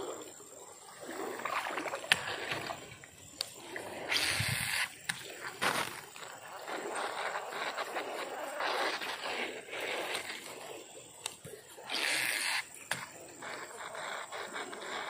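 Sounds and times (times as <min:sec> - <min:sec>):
fishing reel whirring: 0:11.8 - 0:15.0.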